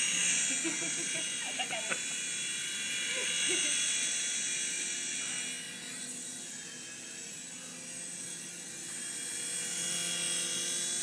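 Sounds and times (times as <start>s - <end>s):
toy helicopter motor whine: 0.0s - 11.0s.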